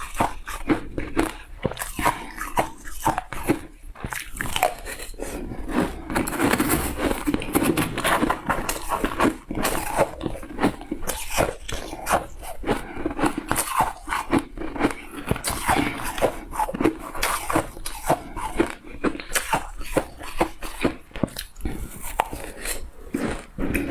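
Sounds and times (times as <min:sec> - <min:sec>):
chewing crunchy ice: 0:00.0 - 0:23.9.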